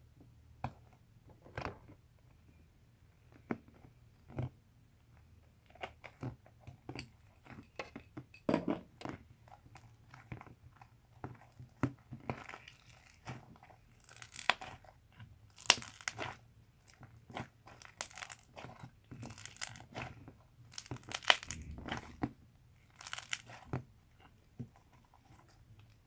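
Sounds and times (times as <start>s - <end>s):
slime squelching: 9.0s - 26.0s
slime crackling and popping: 9.2s - 26.0s.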